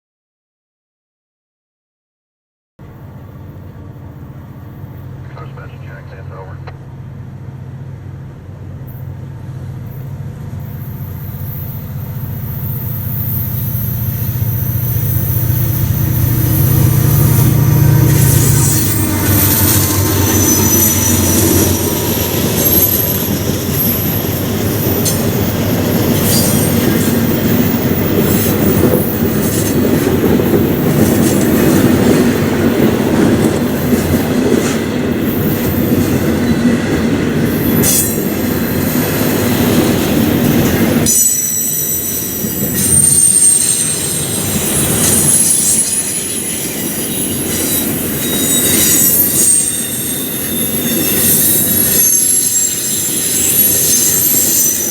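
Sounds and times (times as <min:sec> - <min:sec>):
deep train rumble: 0:02.8 - 0:54.9
train wheels squealing on rails: 0:08.8 - 0:54.9
wheels clattering on track: 0:11.5 - 0:54.9.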